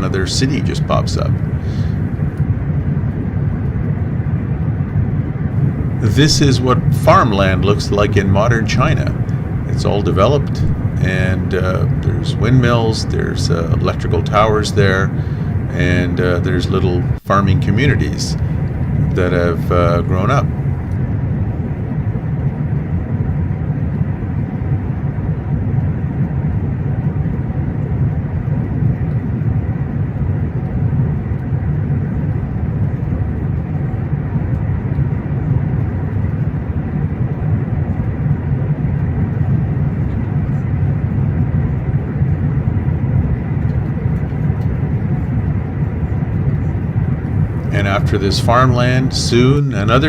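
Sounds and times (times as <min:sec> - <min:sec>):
faint steady whine: 0:00.0 - 0:50.0
train rumbling at speed: 0:00.0 - 0:50.0.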